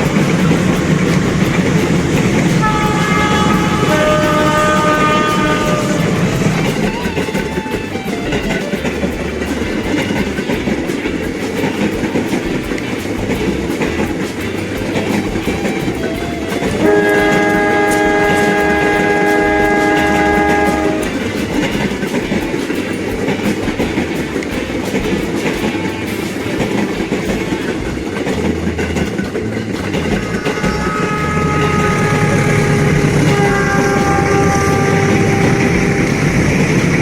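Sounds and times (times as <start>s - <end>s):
train wheels clattering: 0.0s - 37.0s
locomotive horn chord: 2.3s - 6.8s, 16.8s - 21.3s, 30.4s - 37.0s.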